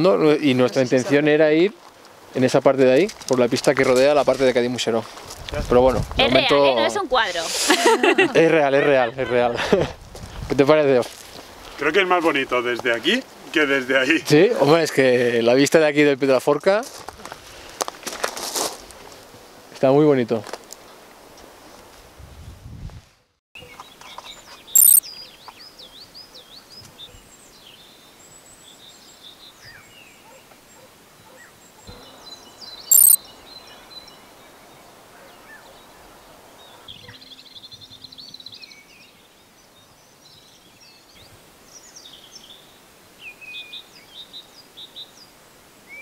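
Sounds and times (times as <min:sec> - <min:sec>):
faint outdoor background: 0:23.7 - 0:46.0
birds chirping and calling: 0:24.8 - 0:25.0, 0:32.9 - 0:33.2
loud high-pitched sounds: 0:24.8 - 0:25.0, 0:32.9 - 0:33.2.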